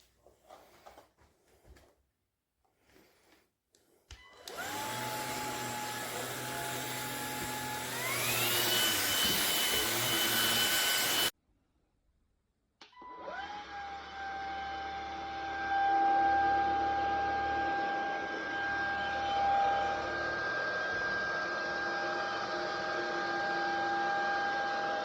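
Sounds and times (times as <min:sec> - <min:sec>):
vacuum motor whine: 0:04.4 - 0:11.3, 0:13.4 - 0:25.0.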